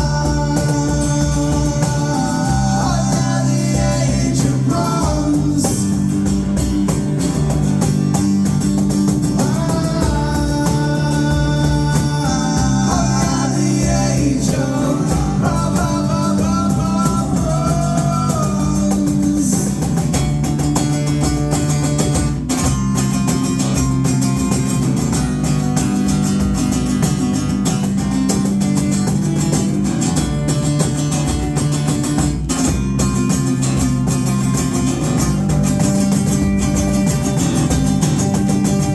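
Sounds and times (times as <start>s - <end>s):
live band playing guitar song: 0.0s - 38.9s.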